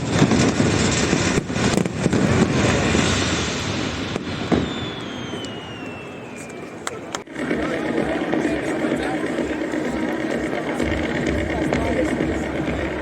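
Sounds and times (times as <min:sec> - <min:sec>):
fireworks bangs: 0:00.0 - 0:13.0
fireworks crackling: 0:00.0 - 0:13.0
firework whistle falling in pitch: 0:04.1 - 0:06.9.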